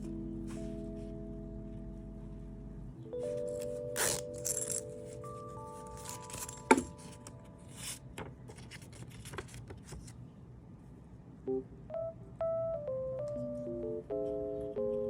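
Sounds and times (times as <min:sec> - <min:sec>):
soft synth melody: 0:00.0 - 0:08.2, 0:11.4 - 0:15.0.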